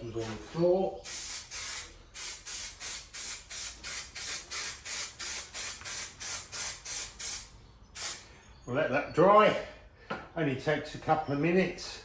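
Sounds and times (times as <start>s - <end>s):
aerosol can spraying in bursts: 1.0s - 8.2s.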